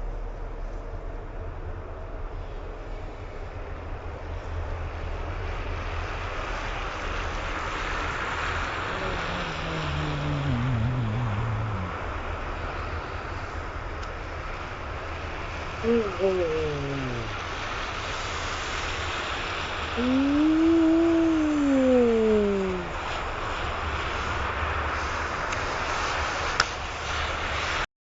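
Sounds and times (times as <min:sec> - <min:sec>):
steady low rumble: 0:00.0 - 0:07.5, 0:08.6 - 0:13.8
engine passing by: 0:07.2 - 0:12.9.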